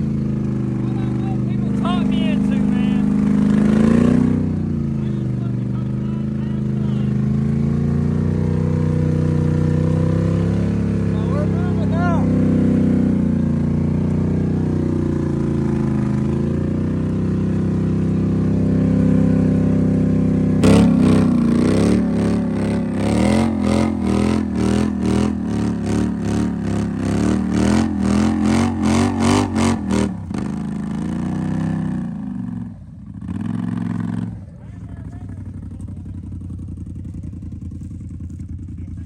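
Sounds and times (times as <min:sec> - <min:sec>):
off-road vehicle engine running: 0:00.0 - 0:39.0.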